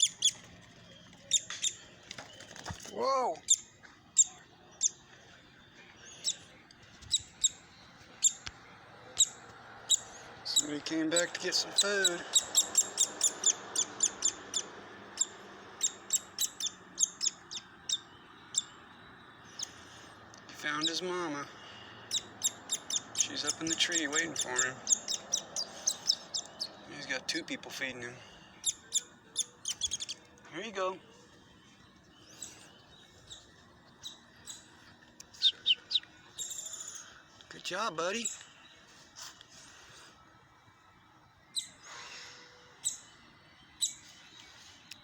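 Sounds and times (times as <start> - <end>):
fledgling woodpecker begging calls: 0.0 - 2.0, 3.4 - 5.2, 5.9 - 18.8, 19.4 - 30.9, 32.1 - 37.2
sharp chirps: 22.1 - 26.8.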